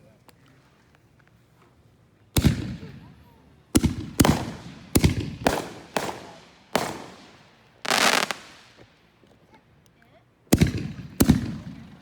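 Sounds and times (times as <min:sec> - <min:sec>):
fireworks bangs: 0:03.8 - 0:08.9, 0:10.5 - 0:12.0.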